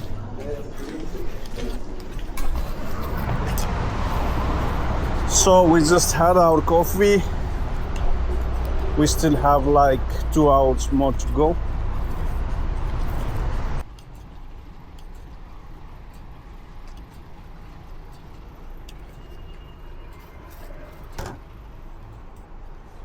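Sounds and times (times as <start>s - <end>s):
truck rumble from cab: 2.3s - 13.8s.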